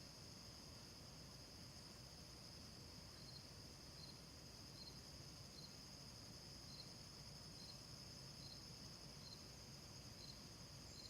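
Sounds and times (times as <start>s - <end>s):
cricket chirp: 0.0s - 11.0s
crickets trilling: 6.6s - 11.0s.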